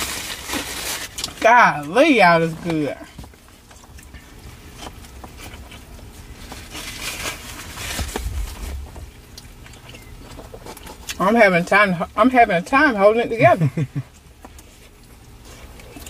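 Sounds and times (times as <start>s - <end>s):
chewing with mouth clicks: 3.2s - 6.9s, 9.0s - 11.2s, 14.1s - 16.0s
short low rumble: 8.0s - 10.2s.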